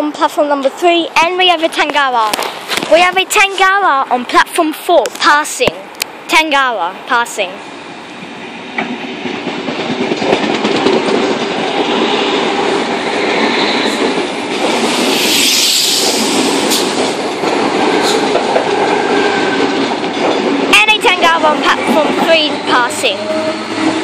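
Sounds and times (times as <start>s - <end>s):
train wheels rumbling on rails: 0.1s - 24.0s
rushing hiss: 14.6s - 17.3s.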